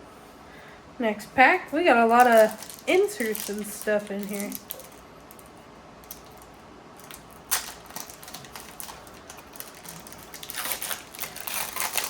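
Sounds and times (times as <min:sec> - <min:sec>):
wrapper tearing: 0:02.1 - 0:05.4, 0:06.0 - 0:12.0
cards crackling and clicking: 0:02.1 - 0:12.0.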